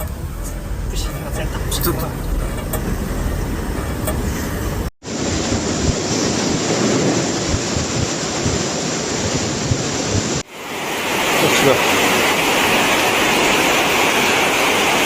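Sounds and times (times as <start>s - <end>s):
street traffic: 0.0s - 6.6s
wind buffeting microphone: 0.0s - 10.5s
rushing water: 0.0s - 15.0s.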